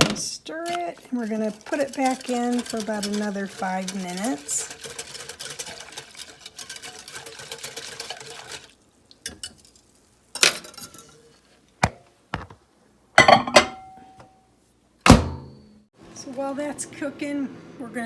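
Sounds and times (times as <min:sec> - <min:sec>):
whisk scraping glass dish: 0:00.6 - 0:08.8
dish knocking and clunking: 0:13.2 - 0:14.2.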